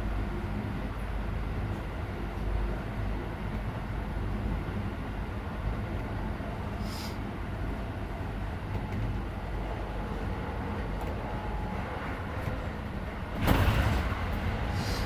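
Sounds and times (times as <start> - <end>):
train wheels rumbling on rail: 0.0 - 15.0
loud rushing noise: 12.9 - 15.0.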